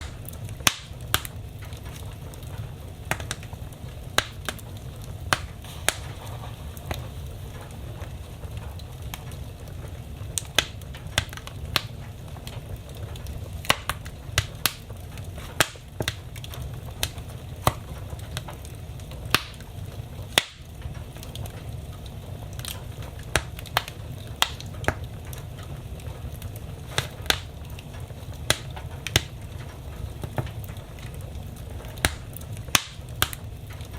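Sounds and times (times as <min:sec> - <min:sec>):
low steady rumble: 0:00.0 - 0:33.9
wood fire crackling: 0:00.0 - 0:33.9.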